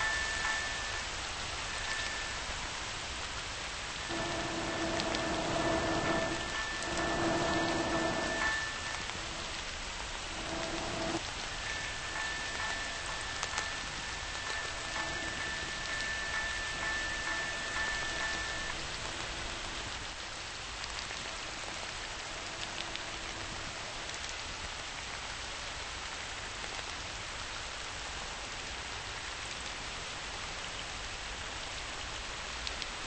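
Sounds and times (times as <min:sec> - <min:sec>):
steady rain: 0:00.0 - 0:33.0
faint drip ticks: 0:28.6 - 0:29.9, 0:31.8 - 0:33.0.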